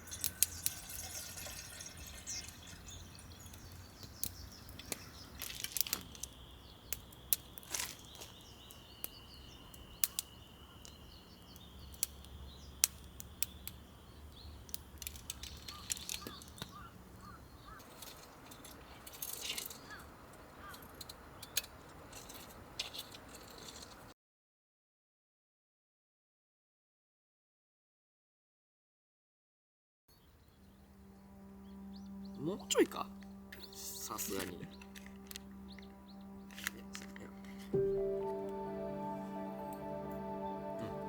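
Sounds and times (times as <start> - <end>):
wood fire crackling: 0.0 - 24.1
thin steady high tone: 37.8 - 41.0.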